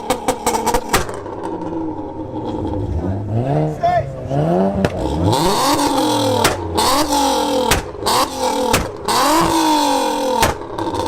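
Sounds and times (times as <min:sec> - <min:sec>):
exhaust pops and bangs: 0:00.0 - 0:01.8, 0:04.8 - 0:11.0
car engine revving: 0:00.0 - 0:11.0.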